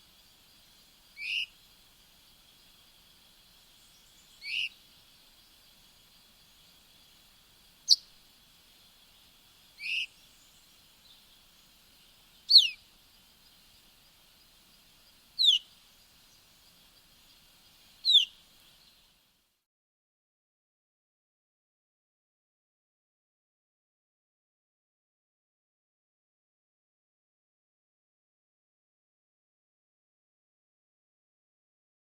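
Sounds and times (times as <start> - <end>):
faint high-pitched hiss: 0.0 - 19.7
bird whistled calls: 1.2 - 1.5, 4.1 - 4.8, 7.9 - 8.1, 9.8 - 10.4, 12.4 - 12.8, 15.4 - 15.7, 18.0 - 18.4.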